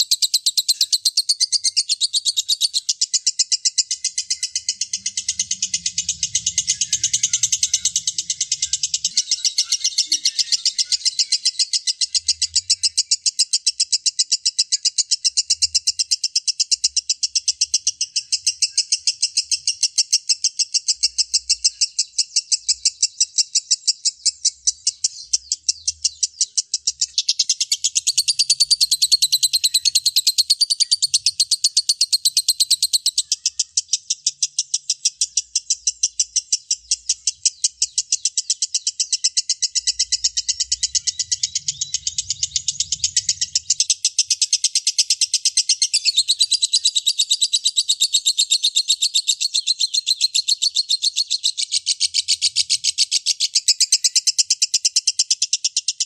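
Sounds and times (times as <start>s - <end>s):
lovebird chattering trill: 0.0s - 56.0s
second higher bird chatter: 17.7s - 54.2s.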